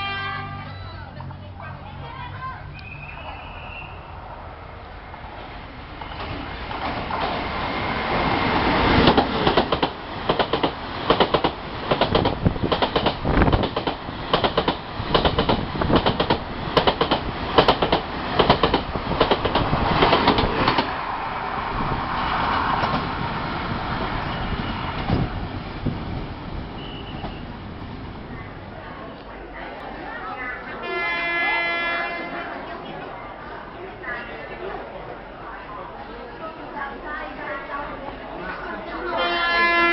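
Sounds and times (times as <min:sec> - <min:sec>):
train rushing past: 0:00.0 - 0:34.1
train wheels clattering: 0:06.0 - 0:21.0.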